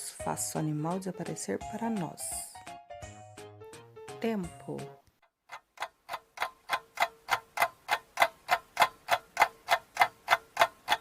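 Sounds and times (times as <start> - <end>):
clock ticking: 4.7 - 11.0.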